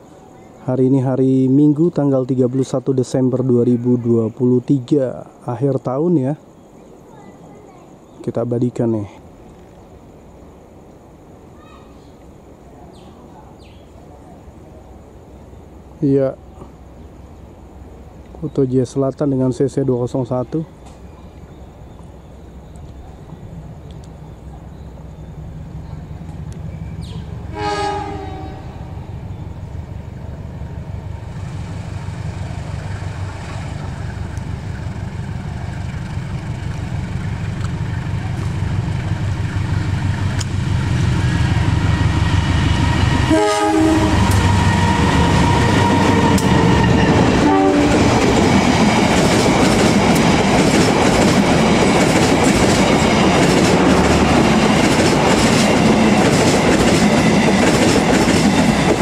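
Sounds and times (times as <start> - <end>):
locomotive engine rumble: 12.3 - 59.0
train horn toots: 27.0 - 29.0, 42.8 - 48.1
train wheels clickety-clack: 44.0 - 59.0.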